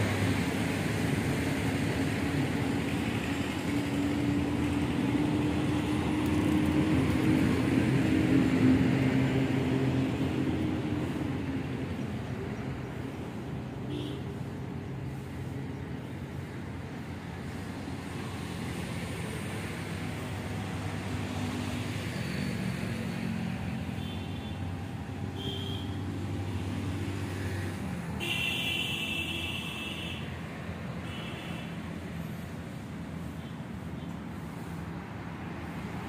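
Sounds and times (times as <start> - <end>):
road traffic hum: 0.0 - 36.0.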